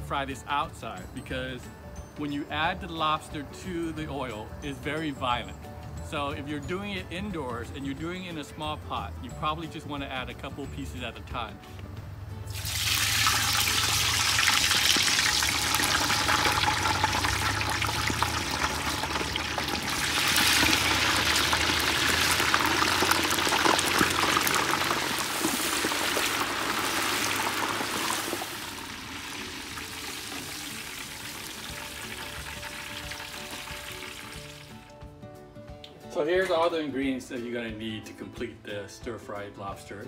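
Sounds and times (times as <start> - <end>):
deep-frying crackling sizzle: 12.5 - 35.0.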